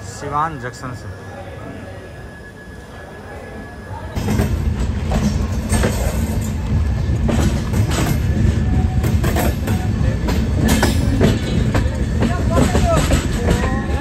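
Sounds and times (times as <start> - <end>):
train low rumble: 0.0 - 14.0
wheels clacking on track: 4.2 - 14.0.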